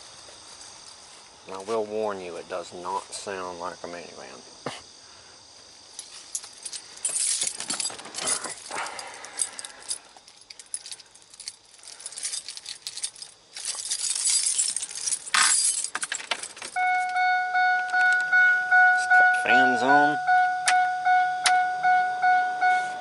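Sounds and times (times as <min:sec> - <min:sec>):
rustling hiss: 0:00.0 - 0:16.7
keys jangling: 0:06.0 - 0:17.2.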